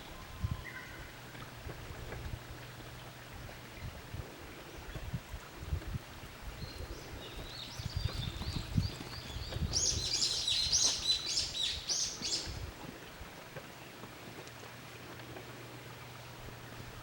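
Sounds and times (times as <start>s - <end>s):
small bird singing: 6.6s - 12.6s.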